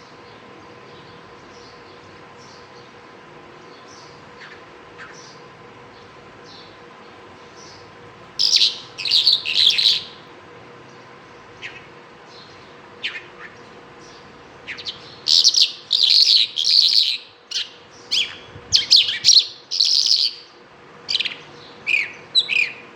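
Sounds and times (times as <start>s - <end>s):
lark singing: 8.4s - 10.3s, 11.6s - 22.9s.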